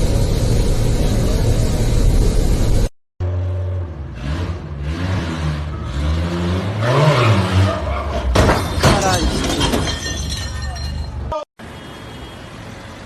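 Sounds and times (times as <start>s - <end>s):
vehicle engine revving: 3.2s - 8.0s.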